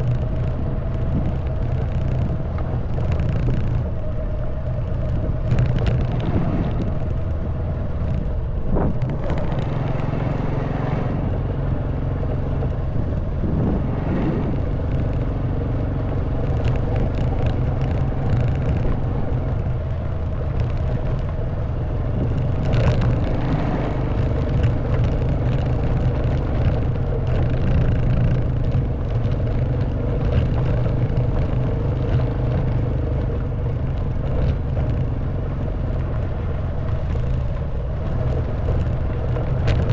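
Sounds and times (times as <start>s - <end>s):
clicks and knocks on stony track: 0.0s - 39.9s
motorcycle engine running: 0.0s - 39.9s.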